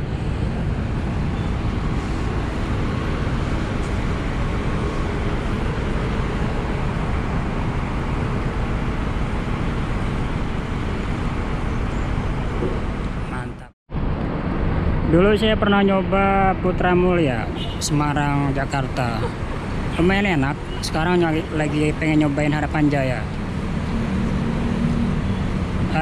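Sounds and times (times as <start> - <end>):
bus engine drone: 0.0 - 26.0.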